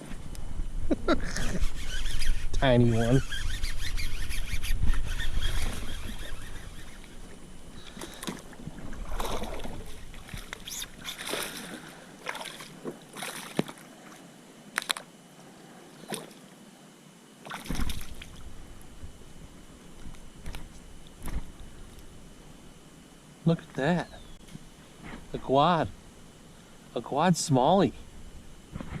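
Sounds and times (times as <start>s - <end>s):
water splashing around kayak: 7.0s - 14.3s.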